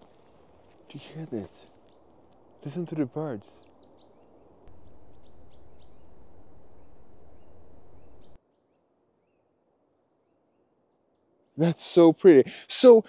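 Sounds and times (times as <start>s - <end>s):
small birds chirping: 0.0s - 9.4s
distant traffic: 4.4s - 8.4s.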